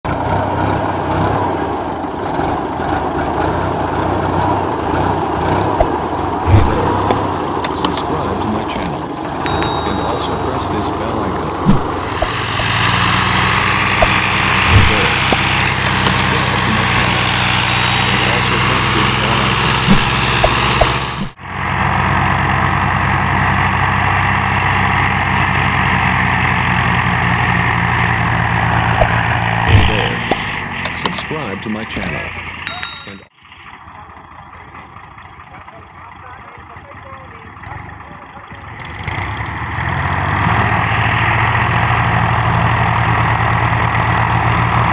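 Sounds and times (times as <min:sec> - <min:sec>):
tractor diesel engine running: 0:00.0 - 0:44.9
low thump: 0:05.8 - 0:07.3, 0:11.6 - 0:12.5, 0:14.0 - 0:15.4, 0:19.9 - 0:21.3.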